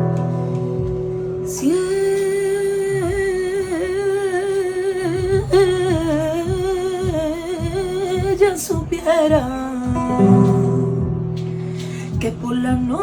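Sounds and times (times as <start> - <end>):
sustained guitar chord: 10.0 - 12.0.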